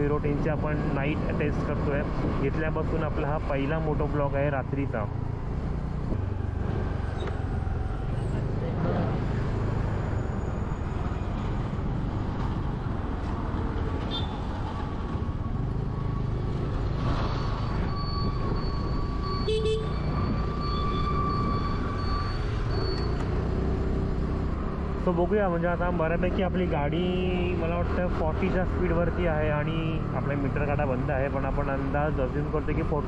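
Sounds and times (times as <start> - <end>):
vehicle horn long tone: 14.1 - 14.5, 19.4 - 20.0.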